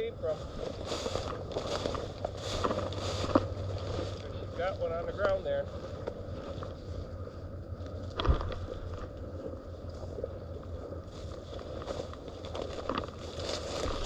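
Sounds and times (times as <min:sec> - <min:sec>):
rustling and handling noise: 0:00.2 - 0:14.0.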